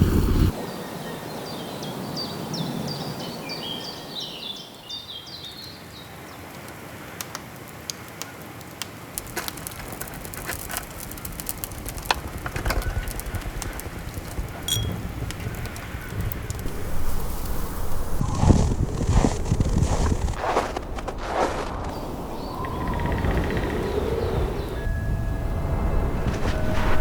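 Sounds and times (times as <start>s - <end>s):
sharp crackles and pops: 5.4s - 24.9s
bird chirping: 21.9s - 26.3s.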